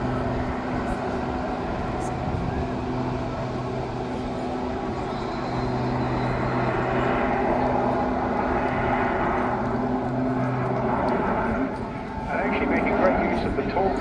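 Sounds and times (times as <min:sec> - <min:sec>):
propeller plane engine drone: 0:00.0 - 0:14.0.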